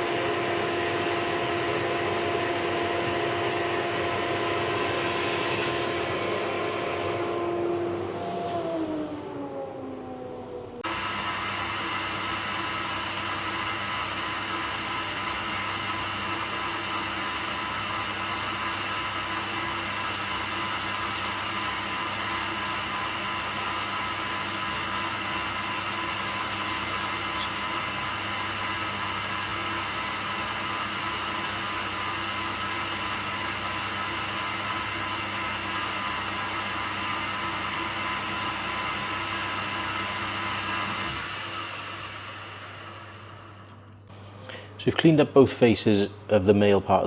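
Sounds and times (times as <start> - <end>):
lathe motor humming: 10.8 - 43.8
steady tones: 13.8 - 40.3.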